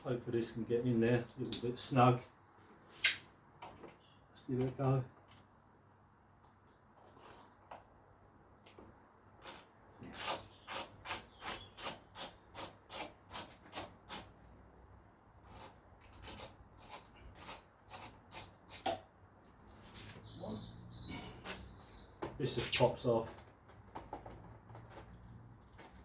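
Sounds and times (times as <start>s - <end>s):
hand tool rasping on fastener: 9.4s - 14.3s, 15.4s - 18.9s.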